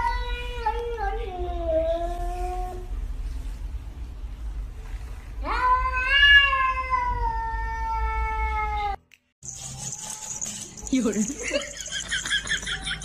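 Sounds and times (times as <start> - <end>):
cat yowling: 5.5 - 9.0.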